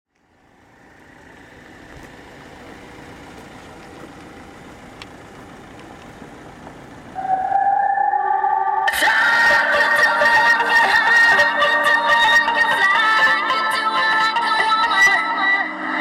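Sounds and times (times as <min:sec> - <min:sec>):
car engine idling: 0:00.1 - 0:07.9, 0:08.8 - 0:15.2
loud music from car stereo: 0:08.8 - 0:16.0.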